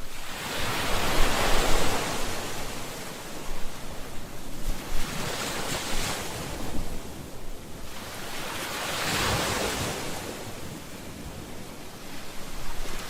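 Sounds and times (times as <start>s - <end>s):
low rumble of surf: 0.0s - 13.0s
ocean waves breaking on shore: 0.0s - 13.0s.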